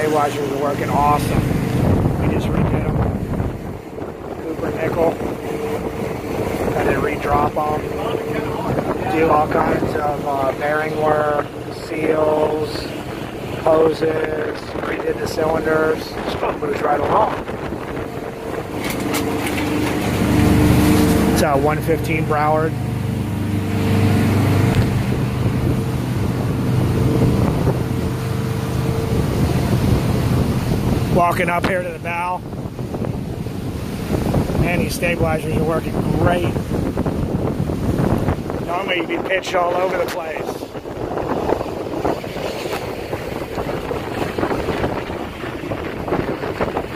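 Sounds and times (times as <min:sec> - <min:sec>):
diesel engines droning: 0:00.0 - 0:31.4
wind rushing over microphone: 0:00.0 - 0:46.9.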